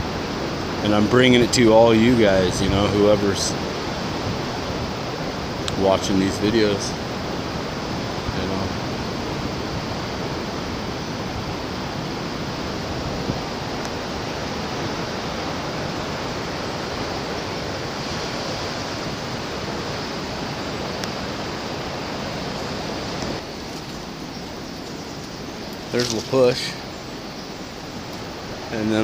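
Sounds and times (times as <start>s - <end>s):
ocean surf rushing: 0.0s - 29.0s.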